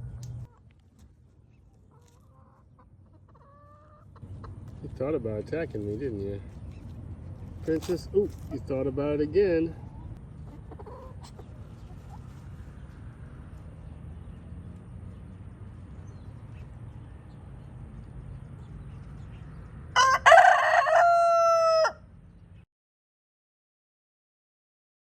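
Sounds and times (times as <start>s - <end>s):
low background rumble: 0.0s - 1.9s
rooster crowing: 20.0s - 22.1s.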